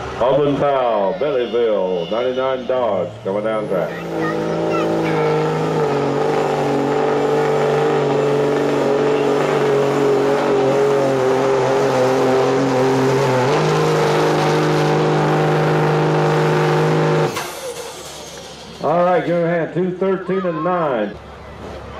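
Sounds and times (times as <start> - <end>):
diesel truck engine under heavy load: 0.0 - 21.9.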